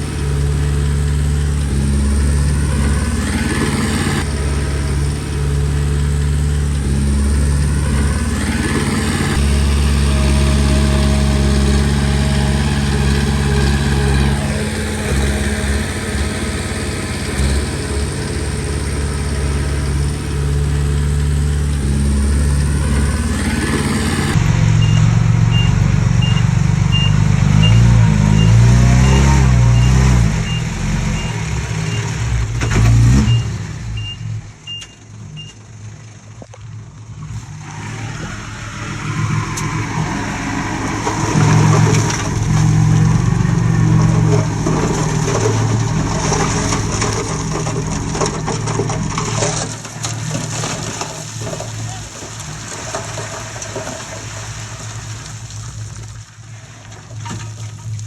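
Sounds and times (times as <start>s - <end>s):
bulldozer diesel engine under load: 0.0s - 58.0s
reversing alarm beeping: 24.7s - 32.1s, 32.7s - 35.6s.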